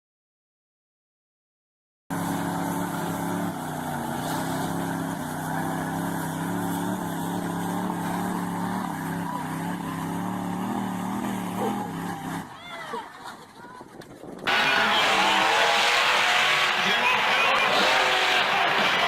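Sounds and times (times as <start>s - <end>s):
truck engine running: 2.1s - 12.6s, 14.5s - 19.0s.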